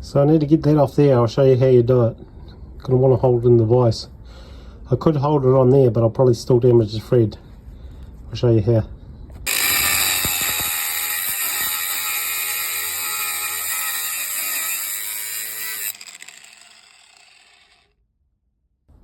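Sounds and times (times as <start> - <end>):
motor spinning down: 9.5 - 17.9
power tool motor whining: 9.5 - 17.9.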